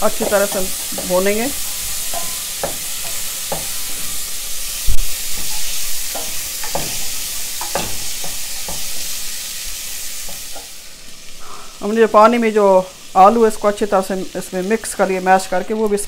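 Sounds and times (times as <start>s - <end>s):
chickpeas sizzling in oil: 0.0s - 16.0s
spoon knocking on pot: 1.9s - 4.1s, 5.4s - 9.0s.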